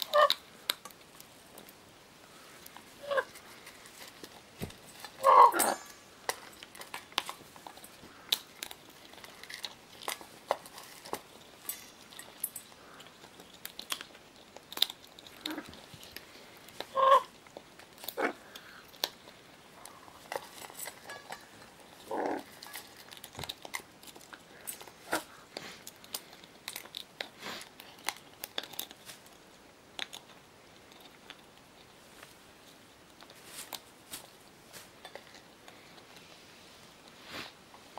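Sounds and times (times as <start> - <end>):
parrot chewing and biting: 0.0 - 37.9
parrot low calls: 3.0 - 3.3, 5.2 - 5.9, 16.9 - 17.3.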